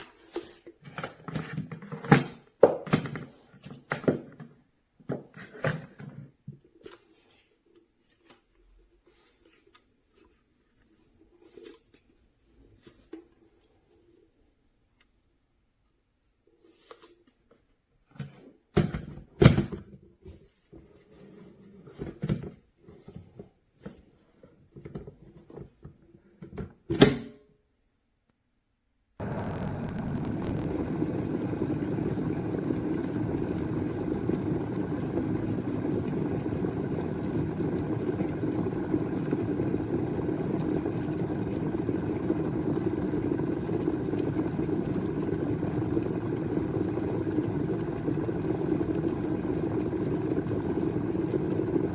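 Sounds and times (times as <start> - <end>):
kettle heating water rumble: 29.2 - 51.9.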